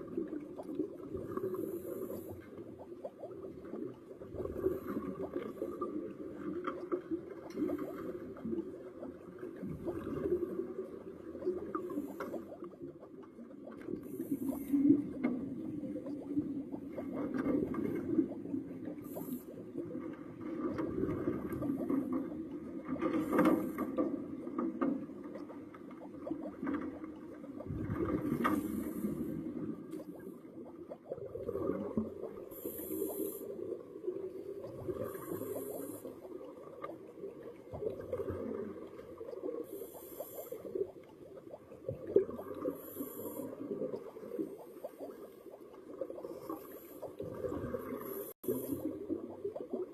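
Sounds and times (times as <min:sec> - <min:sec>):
bubbling exhaled air: 0:25.4 - 0:49.9
regulator hiss on inhalation: 0:32.5 - 0:33.6, 0:35.0 - 0:36.2, 0:39.7 - 0:40.8, 0:42.7 - 0:43.6.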